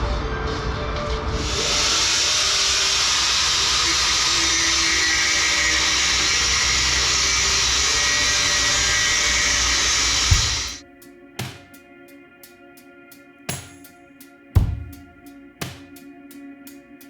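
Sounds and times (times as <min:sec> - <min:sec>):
angle grinder on steel: 0:01.7 - 0:10.8.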